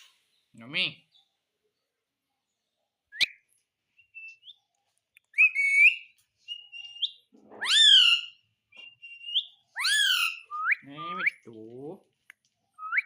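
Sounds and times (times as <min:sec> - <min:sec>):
parrot whistling and chirping: 0:03.1 - 0:04.6, 0:05.3 - 0:11.4, 0:12.8 - 0:13.0.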